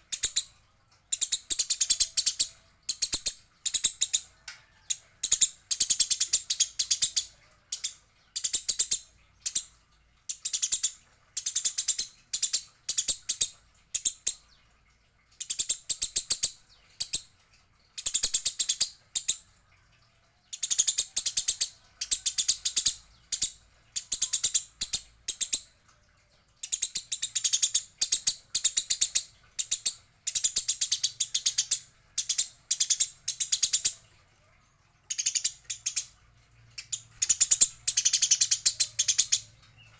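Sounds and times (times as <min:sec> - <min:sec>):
sparrows chattering: 0:17.8 - 0:39.9.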